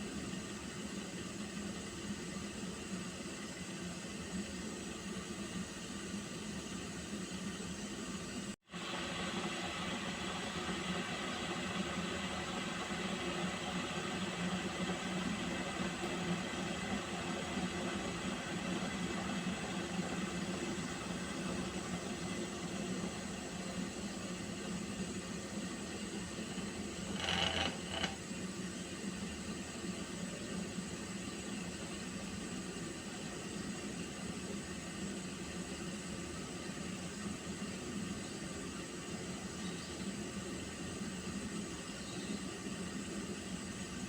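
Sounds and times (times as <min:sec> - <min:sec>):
water heating in pot hissing: 0:00.0 - 0:44.0.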